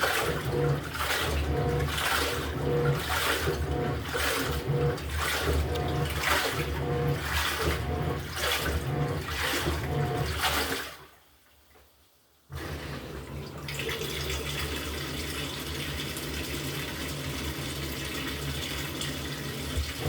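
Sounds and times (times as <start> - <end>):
washing machine motor humming: 0.0 - 10.9, 12.5 - 20.0
water and laundry sloshing: 0.0 - 11.8, 12.5 - 20.0.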